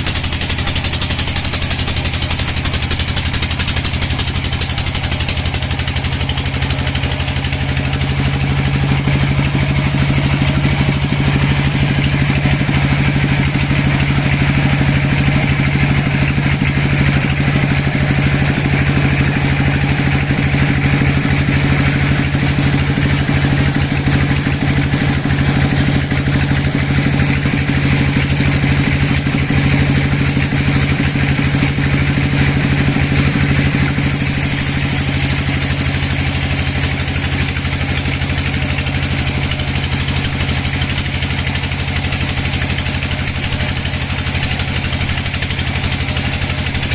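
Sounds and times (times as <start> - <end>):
sawmill engine droning: 0.0 - 46.9
high hiss: 34.0 - 36.1.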